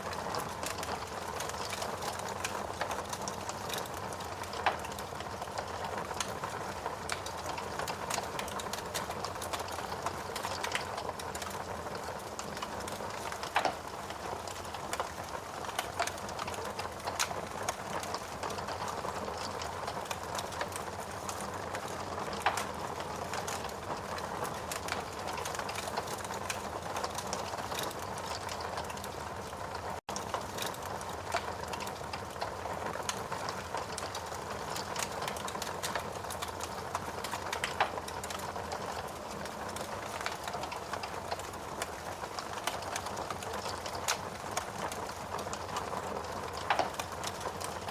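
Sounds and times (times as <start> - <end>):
steady rain: 0.0 - 47.9
wood fire crackling: 0.0 - 47.9.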